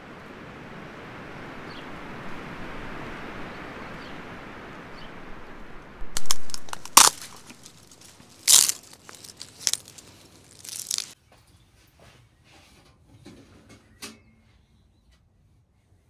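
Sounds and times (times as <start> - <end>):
steady background hiss: 0.0 - 11.1
crinkling handling noise: 6.0 - 11.2.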